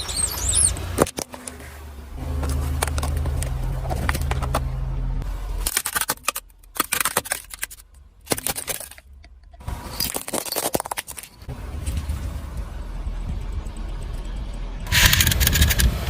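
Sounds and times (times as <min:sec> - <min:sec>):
low car rumble: 0:00.0 - 0:05.7, 0:07.4 - 0:16.0
objects crunching under car tyre: 0:00.9 - 0:04.8, 0:05.6 - 0:12.3.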